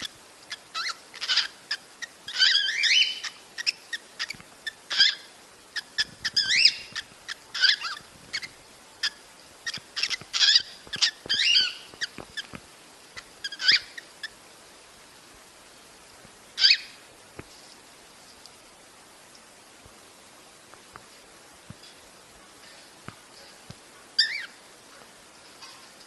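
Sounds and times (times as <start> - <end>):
cockatiel chirps and whistles: 0.7 - 5.2, 5.8 - 12.5.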